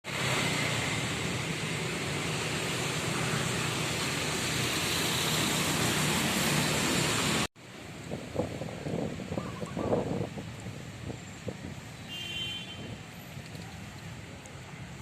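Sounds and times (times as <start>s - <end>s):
loud rushing noise: 0.1s - 7.5s.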